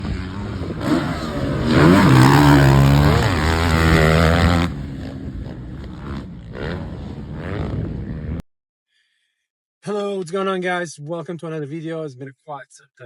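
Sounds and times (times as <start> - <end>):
dirt bike engine revving: 0.0 - 8.4.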